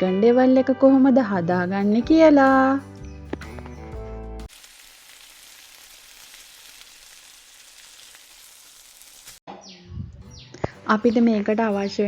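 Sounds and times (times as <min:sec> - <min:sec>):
music: 0:00.0 - 0:04.5, 0:09.5 - 0:12.0
food frying in hot oil: 0:04.5 - 0:09.4.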